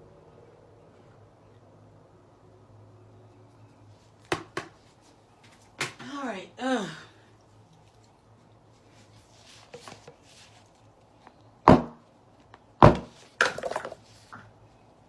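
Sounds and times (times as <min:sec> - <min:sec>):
hard object thudding on work surface: 0:11.7 - 0:12.0, 0:12.8 - 0:14.0
clatter of small knocks: 0:12.9 - 0:14.4.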